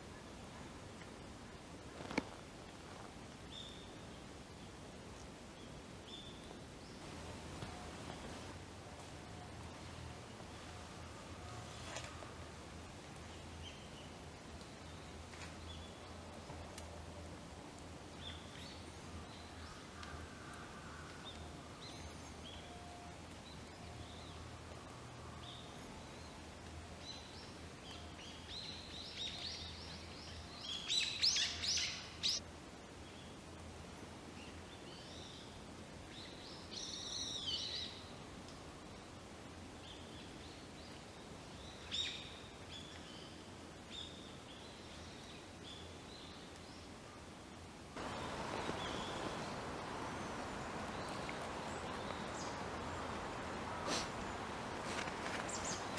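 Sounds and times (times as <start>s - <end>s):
small birds chirping: 48.0s - 55.9s.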